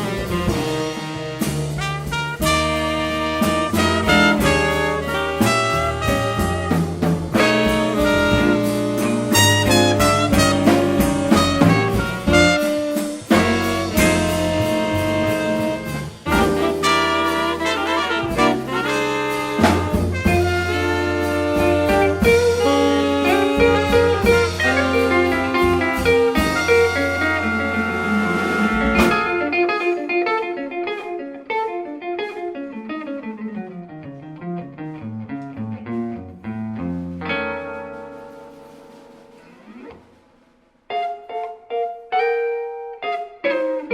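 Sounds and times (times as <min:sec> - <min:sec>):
saxophones and trumpet: 0:00.0 - 0:29.9
walking bass: 0:00.0 - 0:40.4
drums: 0:00.0 - 0:43.9
jazz guitar playing: 0:00.0 - 0:43.9.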